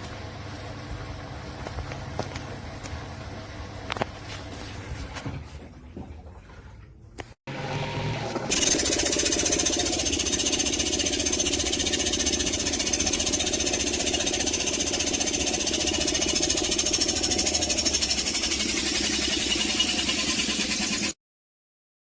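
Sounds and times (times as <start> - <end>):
washing machine rattling: 8.3 - 21.1.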